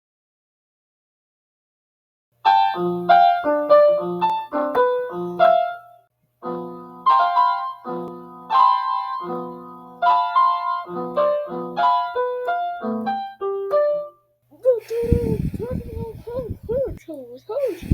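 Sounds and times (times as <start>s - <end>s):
bouncy piano tune: 2.4s - 14.2s.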